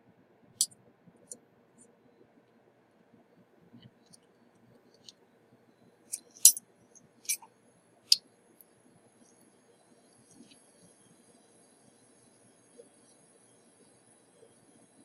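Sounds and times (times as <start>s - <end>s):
metal tools clicking: 6.1s - 6.6s.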